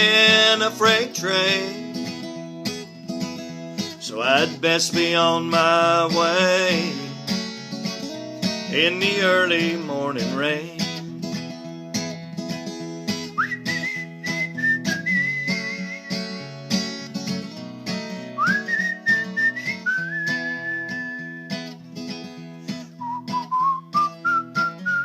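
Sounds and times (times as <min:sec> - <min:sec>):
acoustic guitar strumming: 0:00.0 - 0:25.0
person whistling a melody: 0:13.4 - 0:16.3, 0:18.4 - 0:21.6, 0:22.9 - 0:25.0.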